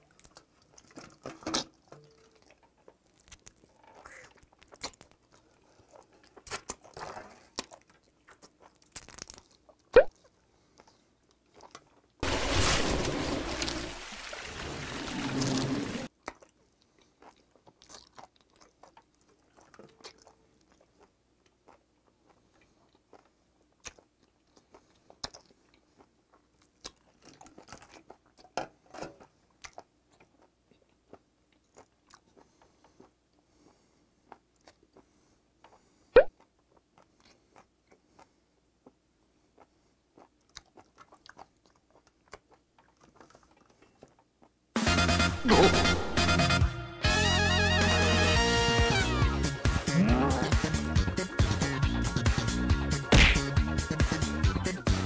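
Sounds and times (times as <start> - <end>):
wet chewing clicks and smacks: 0.0 - 12.2, 16.1 - 44.7.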